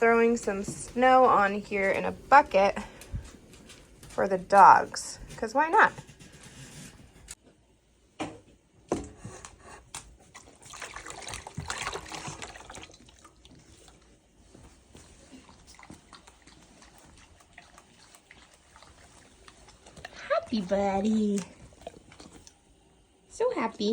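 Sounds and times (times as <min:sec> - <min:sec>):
water pouring and trickling: 0:10.2 - 0:23.2.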